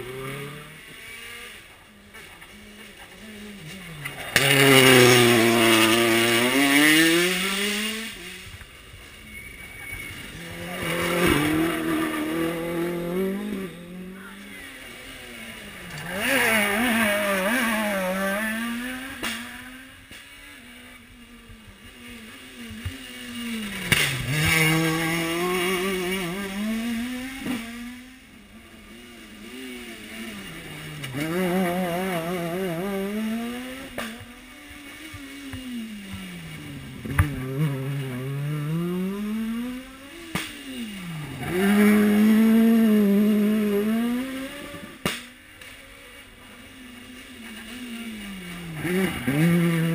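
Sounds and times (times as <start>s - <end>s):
rally car engines revving past: 0.0s - 49.9s.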